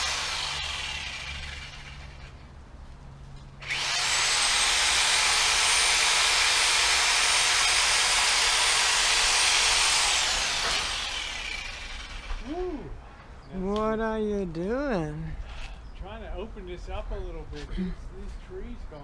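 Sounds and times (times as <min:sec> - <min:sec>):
reciprocating saw cutting branches: 0:00.0 - 0:02.4, 0:03.6 - 0:12.6.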